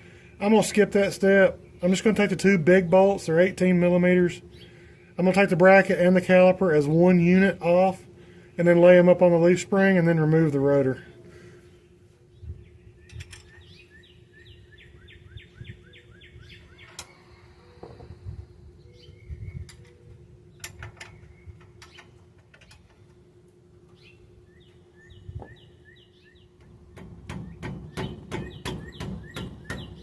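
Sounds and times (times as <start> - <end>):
faint steady hum: 0.0 - 29.8
bird chirping: 11.7 - 22.2, 23.9 - 26.6, 27.3 - 30.0.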